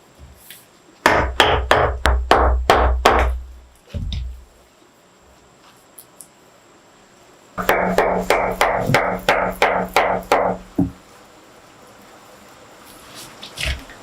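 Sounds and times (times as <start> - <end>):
dull knock: 7.6 - 11.0.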